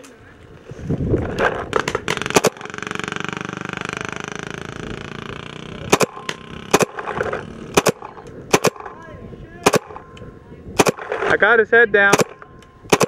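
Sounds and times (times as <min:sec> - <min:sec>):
paintball markers firing: 0:01.4 - 0:03.0, 0:05.4 - 0:09.0, 0:09.6 - 0:10.0, 0:10.8 - 0:11.4, 0:12.0 - 0:13.0.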